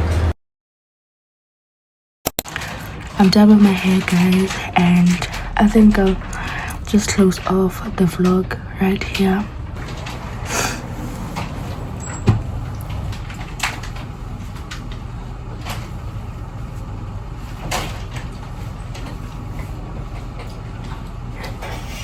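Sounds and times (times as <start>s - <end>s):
steady low rumble: 2.8s - 17.6s.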